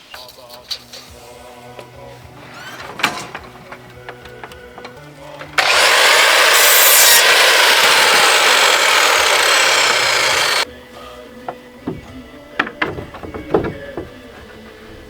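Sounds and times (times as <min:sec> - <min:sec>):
power saw cutting wood: 0:05.5 - 0:10.7
light handling knocks: 0:11.5 - 0:14.7.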